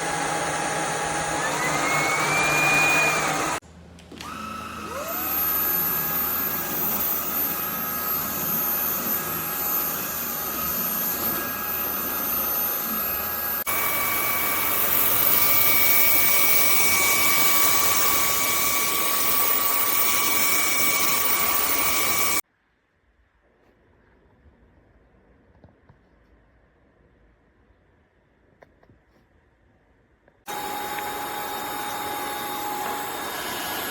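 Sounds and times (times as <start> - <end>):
stick vacuum motor whining: 0.0 - 22.4, 30.5 - 33.9.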